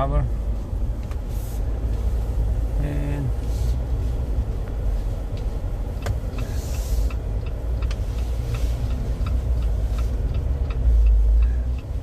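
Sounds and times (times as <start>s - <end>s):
car engine and road rumble: 0.0s - 12.0s
regular light ticks: 4.6s - 12.0s.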